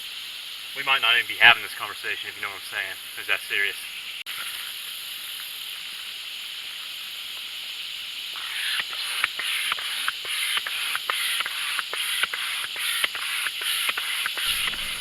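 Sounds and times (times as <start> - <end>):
air hissing: 14.4 - 15.0.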